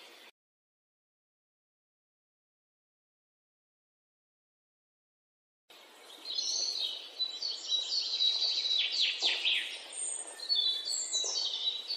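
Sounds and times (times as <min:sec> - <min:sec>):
birds chirping and singing: 0:00.0 - 0:00.3, 0:05.7 - 0:11.9.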